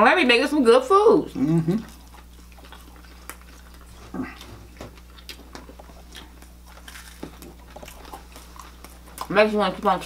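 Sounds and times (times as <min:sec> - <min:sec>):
quiet chewing and mouth clicks: 0:01.5 - 0:09.3.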